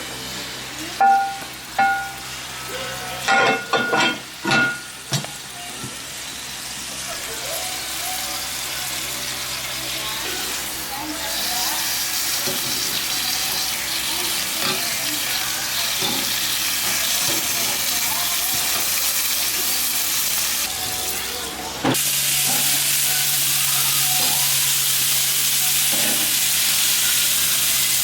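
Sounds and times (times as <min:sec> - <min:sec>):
chicken sizzling on a grill: 0:00.0 - 0:28.0
ringing metal clanks: 0:01.0 - 0:02.2.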